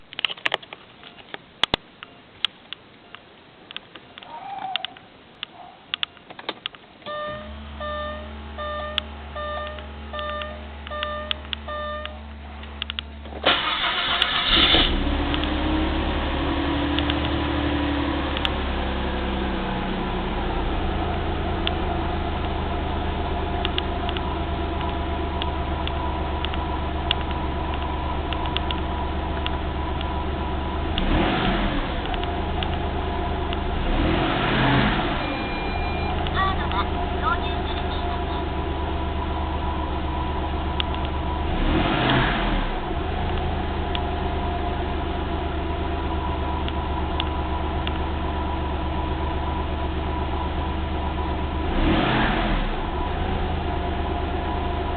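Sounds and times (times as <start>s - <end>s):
electronic beeps: 7.1s - 12.2s, 35.2s - 36.6s
car engine revving and idling: 7.1s - 54.9s
starter motor cranking engine: 13.3s - 15.5s.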